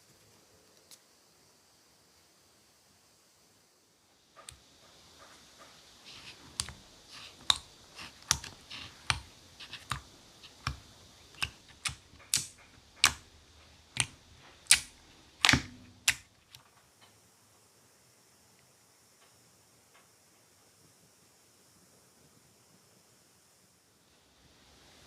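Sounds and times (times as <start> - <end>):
slime popping clicks: 14.0 - 16.3.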